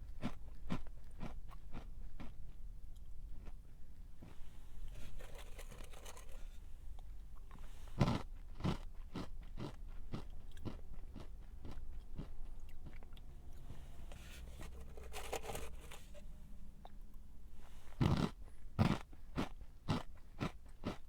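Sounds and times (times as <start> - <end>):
crunchy snack chewing: 4.9 - 6.5, 7.4 - 13.2, 17.9 - 21.0.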